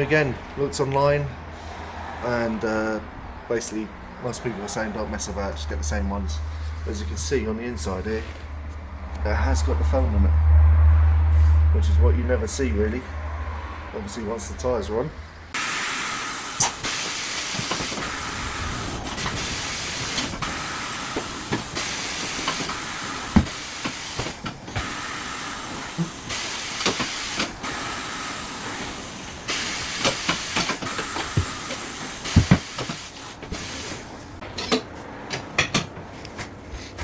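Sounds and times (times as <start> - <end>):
compressed air hissing: 15.5 - 34.4.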